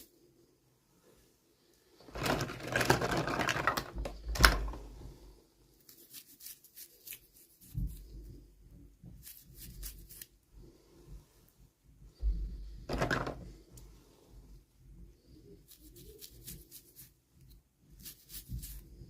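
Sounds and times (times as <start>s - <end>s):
packaging rustling: 2.0s - 4.8s.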